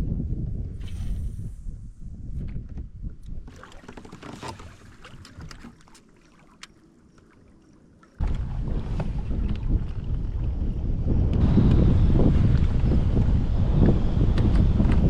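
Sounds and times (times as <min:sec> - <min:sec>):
wind rumbling on microphone: 0:00.0 - 0:05.8, 0:08.2 - 0:15.0
water splashes: 0:03.4 - 0:10.9.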